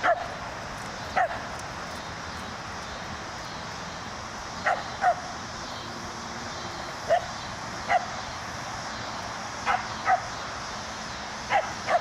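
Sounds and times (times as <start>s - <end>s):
dog barking: 0.0s - 0.3s, 4.6s - 5.2s, 7.1s - 7.3s, 7.9s - 8.1s, 9.7s - 10.3s, 11.5s - 12.0s.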